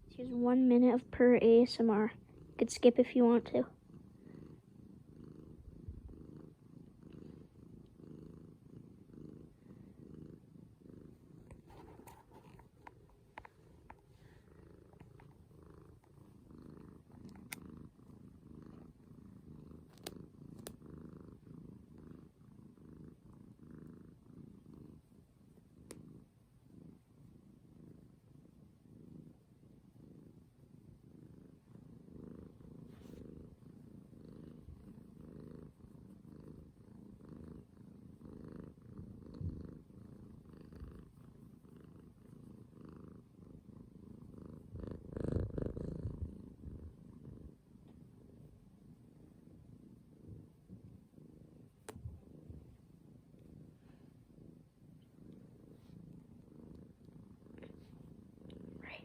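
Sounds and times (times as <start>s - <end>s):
cat purring: 0.0s - 59.0s
faint clicks: 19.8s - 20.8s, 25.8s - 26.0s.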